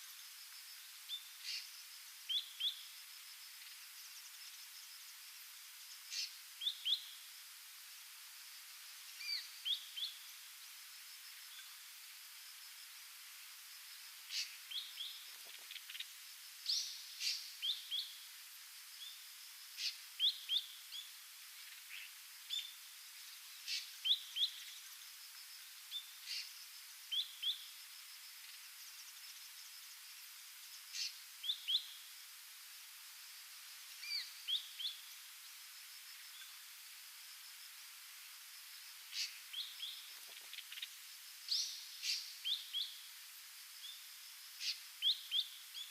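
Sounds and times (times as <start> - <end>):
steady background hiss: 0.0 - 45.9.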